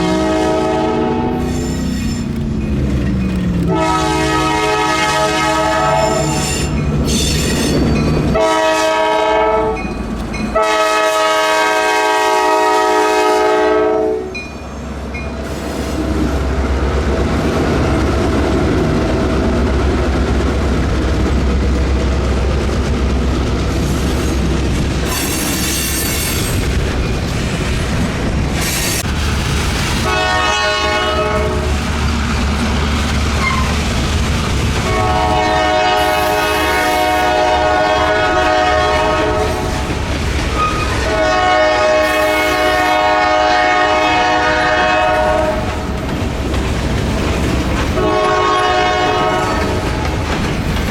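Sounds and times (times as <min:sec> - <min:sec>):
locomotive air horn blasts: 0:00.0 - 0:01.8, 0:03.6 - 0:06.7, 0:08.3 - 0:09.8, 0:10.5 - 0:14.4, 0:30.0 - 0:31.7, 0:34.8 - 0:39.8, 0:40.6 - 0:45.8, 0:48.0 - 0:49.8
train rumble and wheel clatter: 0:00.0 - 0:50.9.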